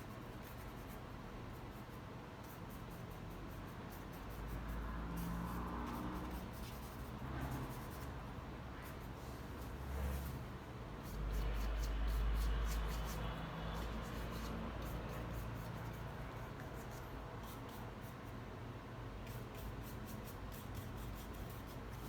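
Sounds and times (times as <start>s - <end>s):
paintbrush strokes and dabs: 8.8s - 18.2s.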